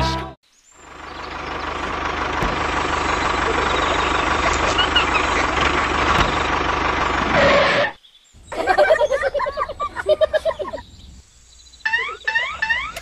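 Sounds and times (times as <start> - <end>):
small tractor engine running: 0.8 - 7.9.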